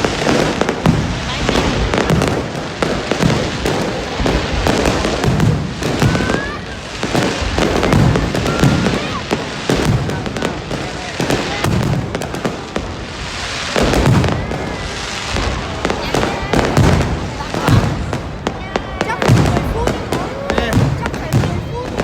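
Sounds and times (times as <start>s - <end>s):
fireworks crackling and booming: 0.0s - 22.0s
fireworks whistling: 0.0s - 22.0s.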